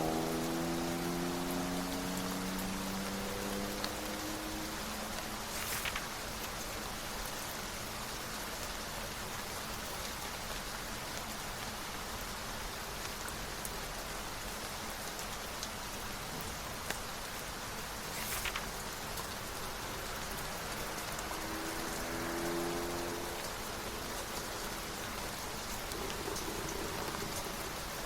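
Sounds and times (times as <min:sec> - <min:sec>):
steady rain: 0:00.0 - 0:28.0
brief rustle: 0:05.4 - 0:06.5, 0:18.1 - 0:19.3.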